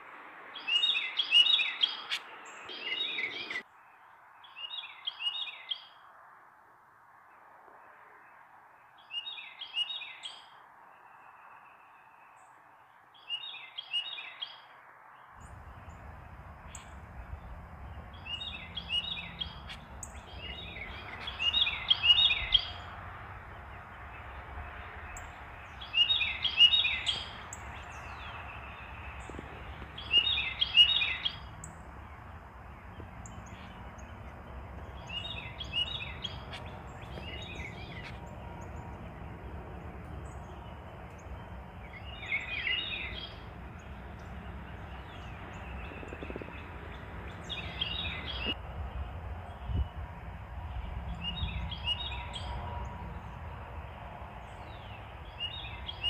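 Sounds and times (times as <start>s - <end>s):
steady background noise: 14.8s - 56.0s
bird singing falling notes: 25.1s - 39.1s.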